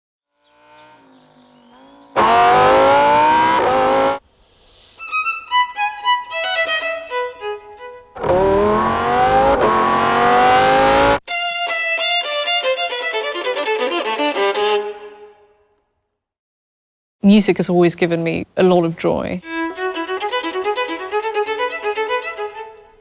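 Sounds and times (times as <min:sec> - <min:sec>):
sports car engine revving hard: 0:00.5 - 0:04.2, 0:08.2 - 0:11.2.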